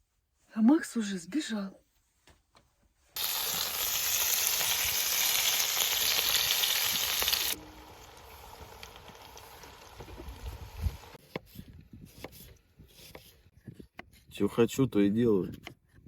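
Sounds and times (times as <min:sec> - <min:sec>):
loud steady hiss: 0:03.2 - 0:11.2.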